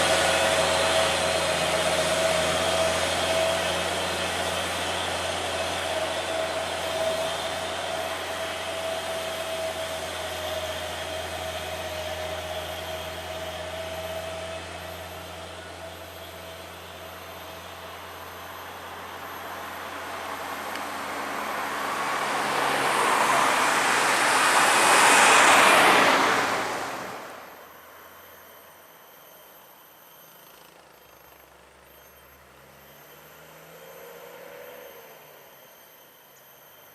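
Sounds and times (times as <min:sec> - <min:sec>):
heavy vehicles passing: 0:00.0 - 0:27.6.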